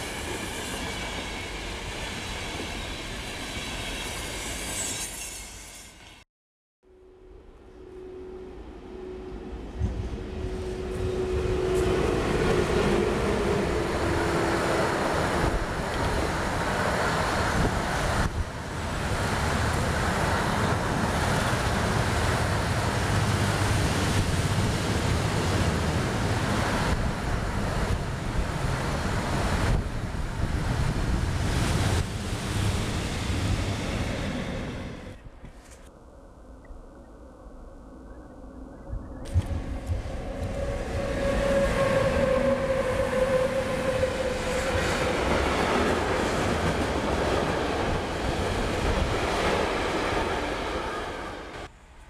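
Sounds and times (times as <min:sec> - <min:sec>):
locomotive humming tone: 0:06.9 - 0:30.4, 0:39.0 - 0:51.7
freight train rumbling past: 0:07.5 - 0:35.4, 0:39.4 - 0:51.8.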